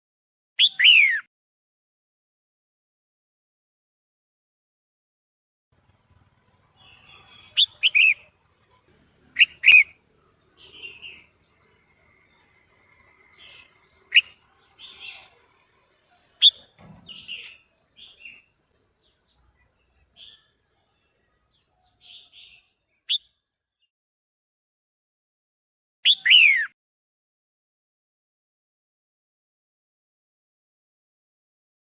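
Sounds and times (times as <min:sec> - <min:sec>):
bird chirping calls: 0:05.8 - 0:23.4, 0:26.1 - 0:26.7
quiet bird chatter: 0:05.8 - 0:23.9.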